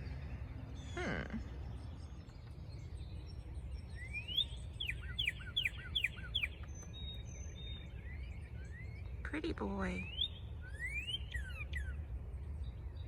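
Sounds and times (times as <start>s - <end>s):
steady low rumble: 0.0s - 4.0s
songbird whistling: 2.7s - 9.2s, 10.0s - 12.0s.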